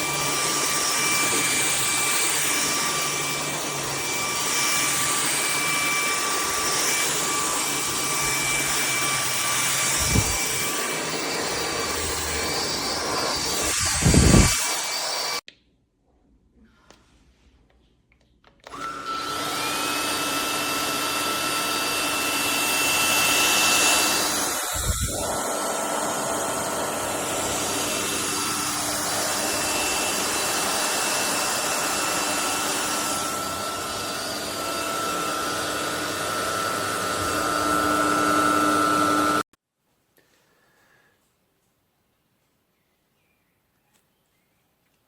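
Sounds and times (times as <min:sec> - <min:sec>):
vacuum cleaner motor whine: 0:00.0 - 0:15.4, 0:18.6 - 0:39.4
rush of air: 0:13.6 - 0:14.6.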